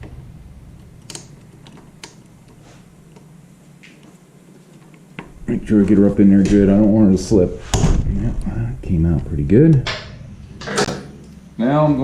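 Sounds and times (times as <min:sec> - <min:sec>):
faint clicks and light taps: 0:00.8 - 0:05.3.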